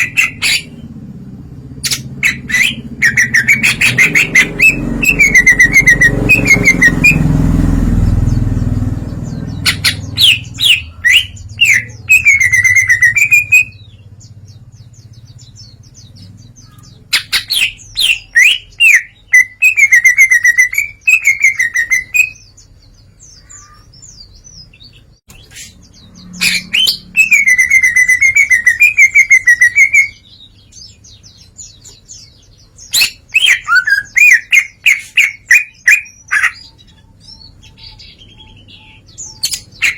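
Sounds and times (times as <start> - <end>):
low rumble: 0.0 - 17.2
bird singing trills: 0.0 - 39.9.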